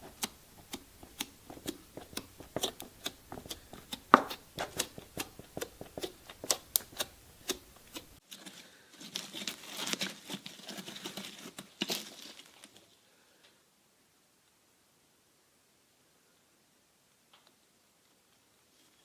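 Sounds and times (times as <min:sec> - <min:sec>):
shredder crushing and tearing: 0:00.0 - 0:08.2.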